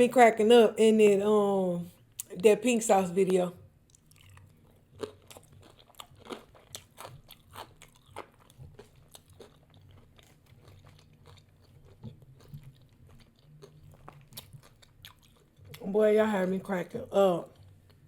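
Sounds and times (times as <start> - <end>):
chewing crispy fried food: 3.8 - 15.9, 17.4 - 18.0.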